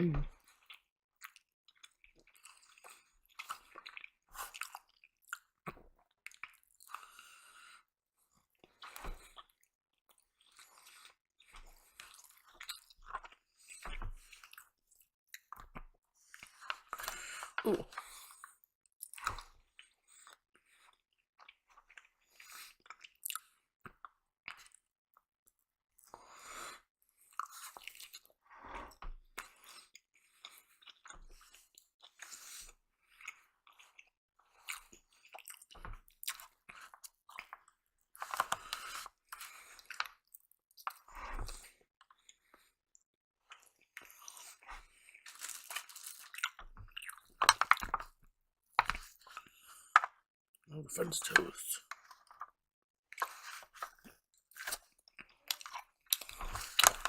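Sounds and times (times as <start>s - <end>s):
person chewing and crunching food: 0.2s - 57.0s.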